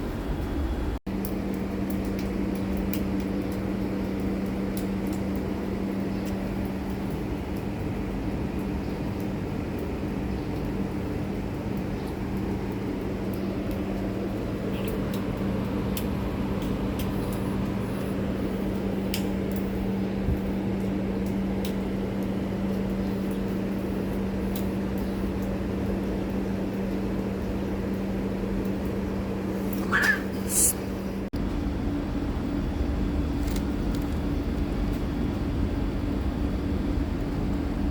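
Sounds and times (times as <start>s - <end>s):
cat meowing: 29.8s - 30.8s.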